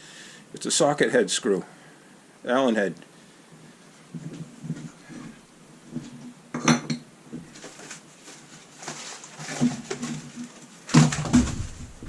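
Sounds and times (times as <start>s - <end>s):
objects knocking as set down: 8.9s - 12.0s.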